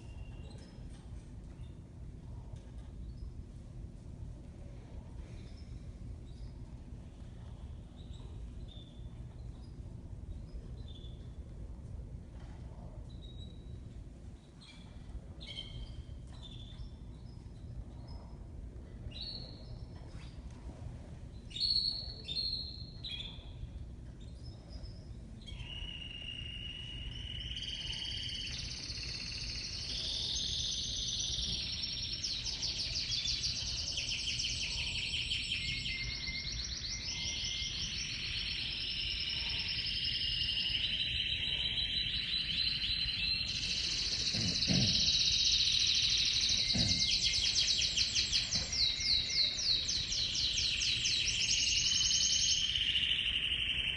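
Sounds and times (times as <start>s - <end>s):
canary song with trills: 0.0s - 53.9s
canary calls: 25.5s - 53.9s.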